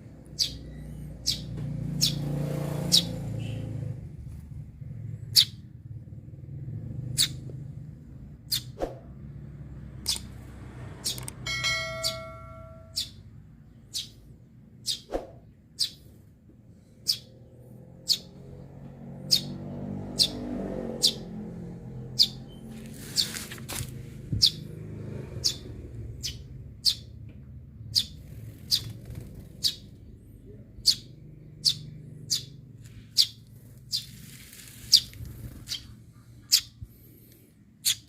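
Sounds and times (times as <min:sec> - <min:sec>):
sparrow chirping: 0:00.1 - 0:04.2, 0:04.9 - 0:05.7, 0:07.0 - 0:08.8, 0:09.9 - 0:16.2, 0:16.8 - 0:18.6, 0:19.2 - 0:23.4, 0:24.3 - 0:27.2, 0:27.8 - 0:38.0
low hum: 0:10.6 - 0:19.2.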